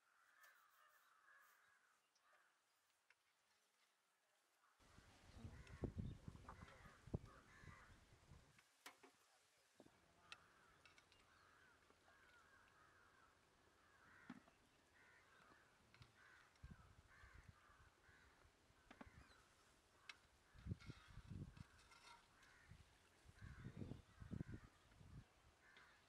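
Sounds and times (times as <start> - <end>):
birds harsh calls: 4.9 - 8.1, 10.2 - 26.0.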